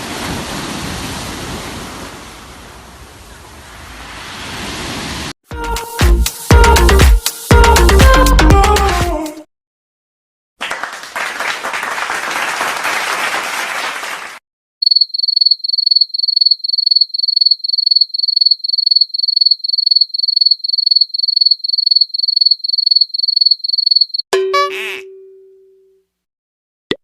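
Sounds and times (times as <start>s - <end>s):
many hands clapping: 10.6s - 14.4s
crickets chirping: 14.8s - 24.2s.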